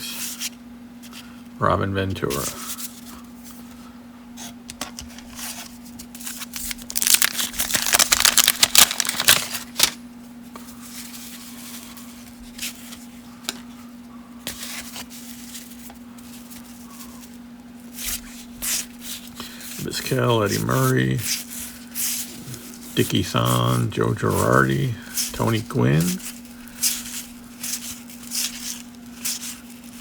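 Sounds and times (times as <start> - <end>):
cards clicking and rustling: 4.7 - 10.0, 22.0 - 30.0
wrapper tearing and crinkling: 6.2 - 10.0, 25.4 - 30.0.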